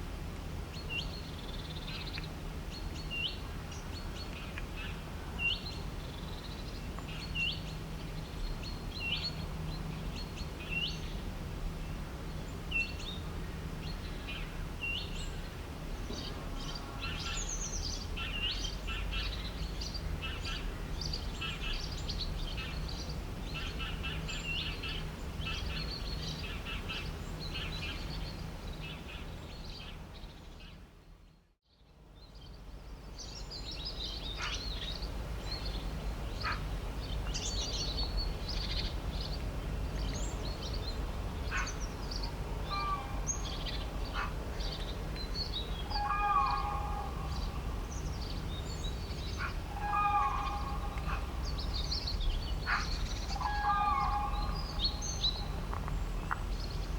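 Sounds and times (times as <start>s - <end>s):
chorus of bird chirps: 32.2s - 56.9s.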